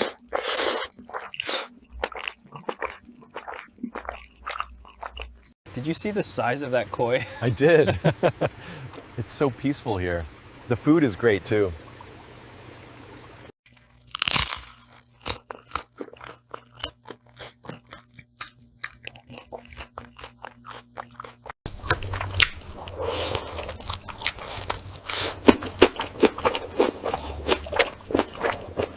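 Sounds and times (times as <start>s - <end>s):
crunching and chewing: 0.0s - 5.6s, 13.7s - 28.9s.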